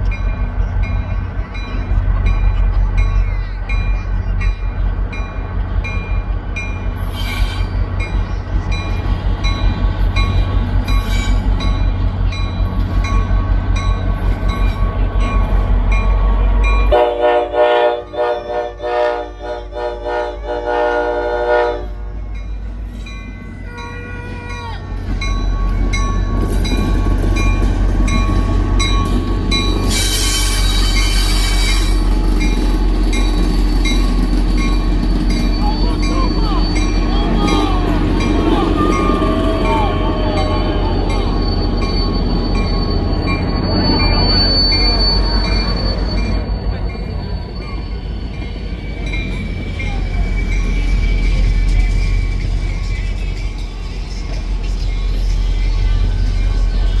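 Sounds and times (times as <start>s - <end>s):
locomotive bell ringing: 0.0s - 19.3s, 21.1s - 57.0s
diesel locomotive rumbling: 0.0s - 57.0s
air horn: 16.9s - 22.0s.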